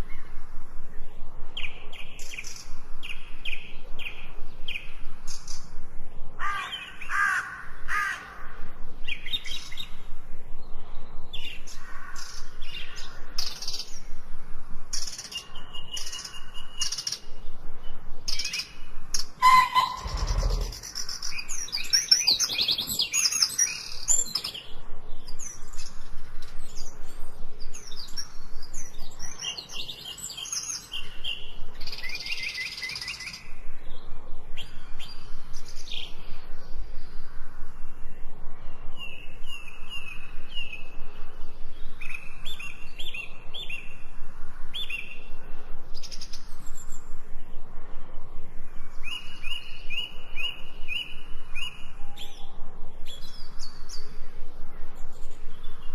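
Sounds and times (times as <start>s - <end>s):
songbirds chirping and singing: 0.0s - 55.9s
bird repeating short quick notes: 19.4s - 21.0s.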